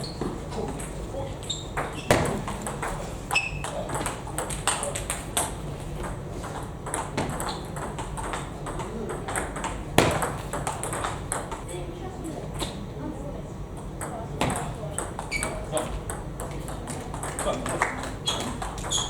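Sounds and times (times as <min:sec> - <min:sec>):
sharp table tennis smacks: 0:01.8 - 0:11.6.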